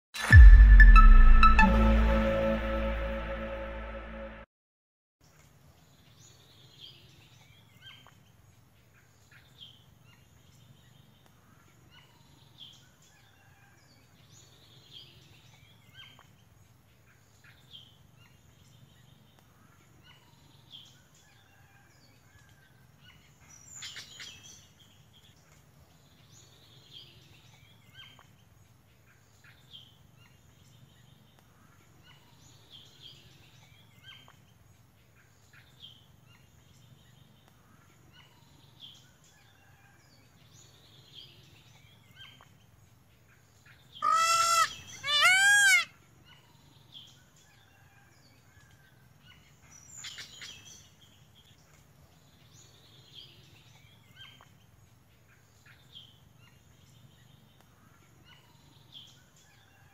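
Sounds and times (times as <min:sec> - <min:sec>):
faint bird calls: 0:44.0 - 0:45.9.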